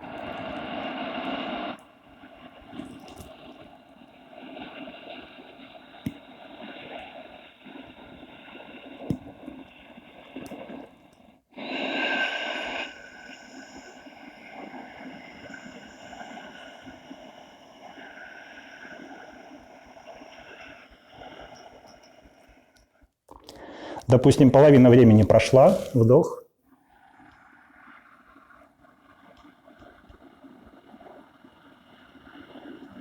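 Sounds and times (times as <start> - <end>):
person breathing through the nose: 11.6 - 21.6, 23.4 - 24.1.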